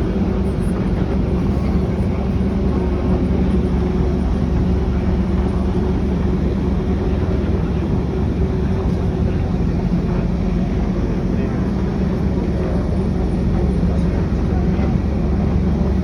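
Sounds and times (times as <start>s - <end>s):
ferry boat engine drone: 0.0s - 16.0s.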